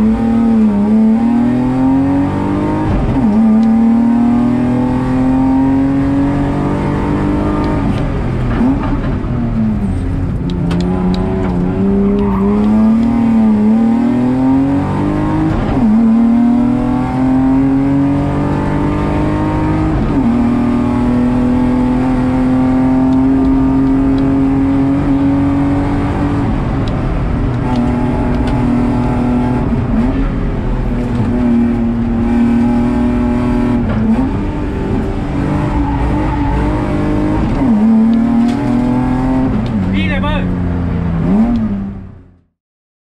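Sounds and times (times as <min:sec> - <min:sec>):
car engine revving hard: 0:00.0 - 0:09.0, 0:09.6 - 0:42.0.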